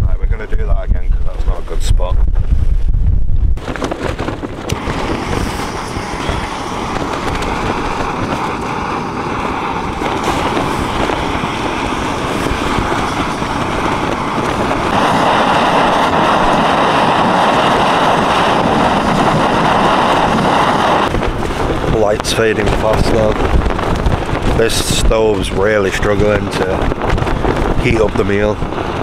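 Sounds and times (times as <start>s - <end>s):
wind buffeting microphone: 0.0s - 29.0s
camping stove burner hissing: 4.7s - 21.1s.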